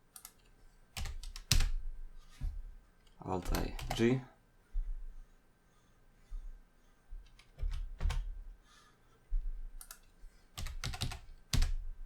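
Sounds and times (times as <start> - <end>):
keyboard keys clicking: 3.4 - 4.1, 9.8 - 11.8.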